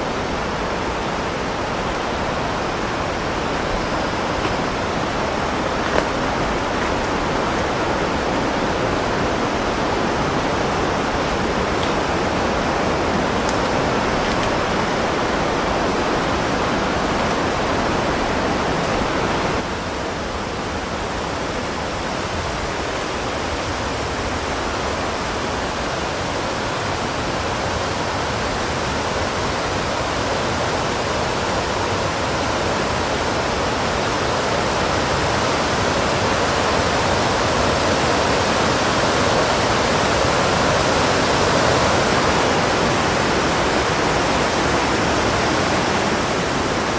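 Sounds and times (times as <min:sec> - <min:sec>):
rushing water: 0:00.0 - 0:46.9.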